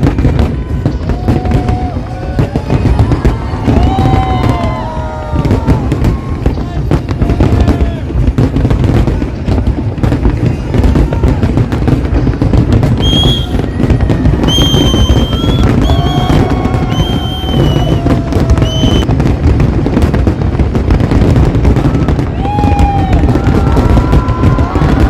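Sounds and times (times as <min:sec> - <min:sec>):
fireworks bursting and crackling: 0:00.0 - 0:25.0.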